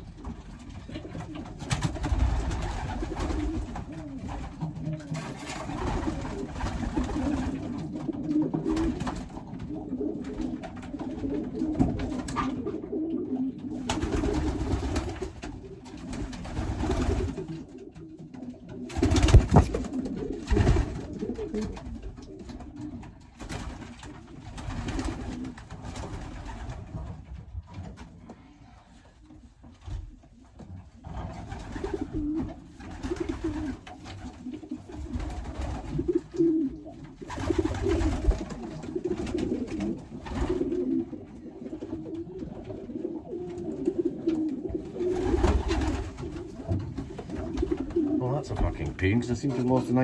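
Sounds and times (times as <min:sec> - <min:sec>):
pigeons cooing: 0:00.0 - 0:27.2, 0:28.9 - 0:48.9
birds rustling and scuffling: 0:00.0 - 0:50.0.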